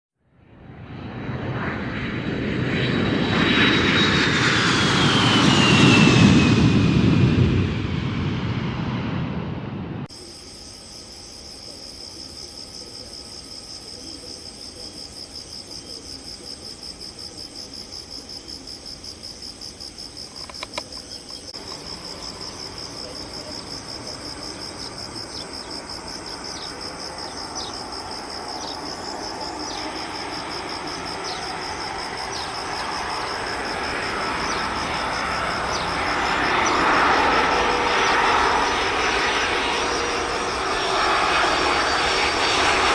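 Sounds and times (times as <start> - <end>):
airliner engines approaching: 0.3 - 42.9
insects trilling: 10.1 - 42.9.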